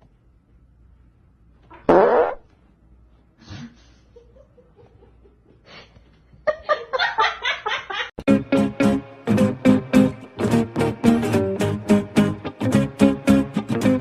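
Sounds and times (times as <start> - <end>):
loud fart-like blurt: 1.7 - 2.5.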